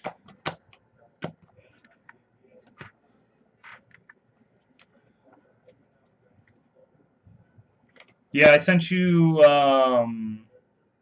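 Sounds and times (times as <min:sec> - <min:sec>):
computer keyboard keystrokes: 0:07.9 - 0:08.2.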